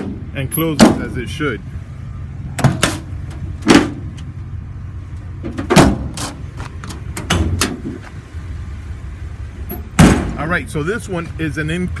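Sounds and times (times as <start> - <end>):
metal cabinet doors banging: 2.6 - 4.0, 5.4 - 6.4, 7.2 - 8.0, 10.0 - 10.4.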